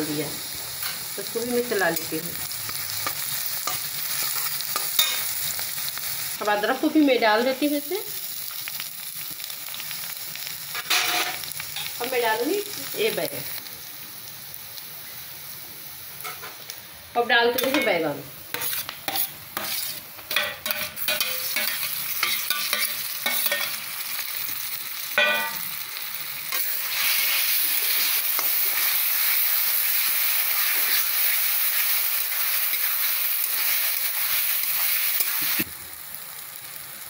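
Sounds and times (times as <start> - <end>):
food sizzling in oil: 0.0 - 37.0
metal spatula scraping a pan: 3.0 - 5.3, 10.8 - 11.9, 17.6 - 23.8.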